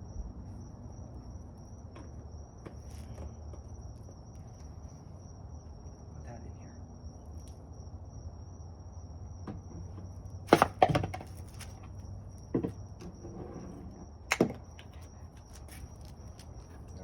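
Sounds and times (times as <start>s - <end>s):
objects thudding and clattering: 9.5s - 13.7s.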